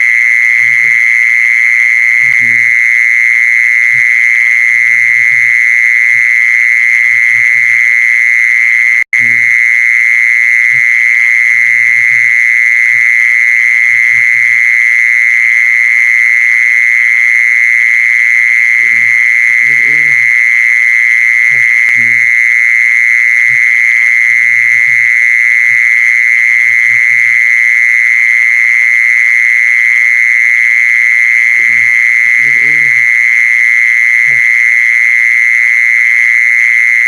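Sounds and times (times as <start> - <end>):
high-pitched animal trill: 2.1 - 2.8, 18.6 - 20.6, 21.4 - 22.3, 31.4 - 33.4, 34.2 - 34.6.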